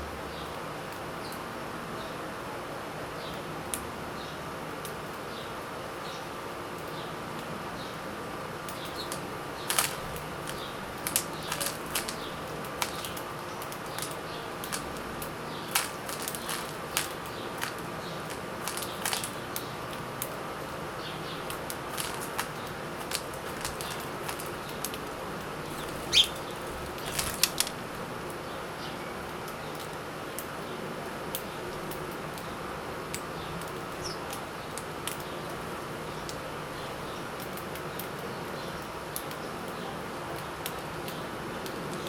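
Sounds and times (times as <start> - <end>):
beaks pecking at food: 8.6 - 30.5
wing flutters: 8.8 - 19.4, 21.5 - 27.8.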